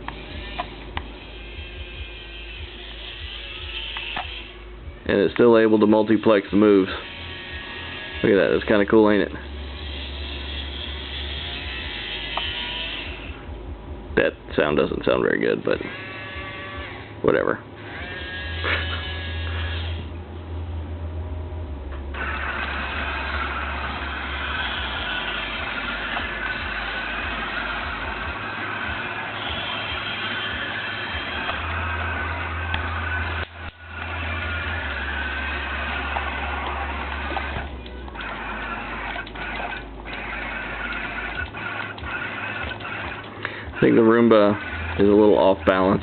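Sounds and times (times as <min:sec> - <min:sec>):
small electric motors: 0:00.0 - 0:04.7, 0:05.4 - 0:13.5, 0:15.4 - 0:20.2, 0:22.1 - 0:46.0
steady low hum: 0:00.0 - 0:46.0
loud noisy motor: 0:05.7 - 0:13.5, 0:17.8 - 0:20.2, 0:22.0 - 0:46.0.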